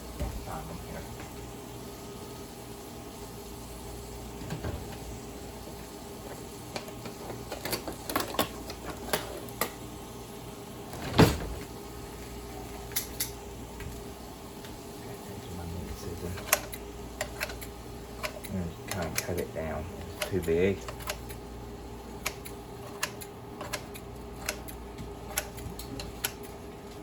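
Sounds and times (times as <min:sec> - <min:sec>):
steady low hum: 0:00.0 - 0:27.0
kitchen utensils clicking and clinking: 0:06.2 - 0:09.8.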